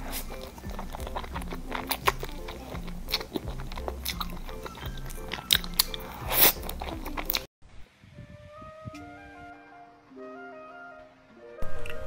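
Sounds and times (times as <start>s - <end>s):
background music with bass line: 0.0s - 7.4s
biting and chewing dessert: 0.0s - 7.5s
wet mouth clicks: 0.0s - 7.5s.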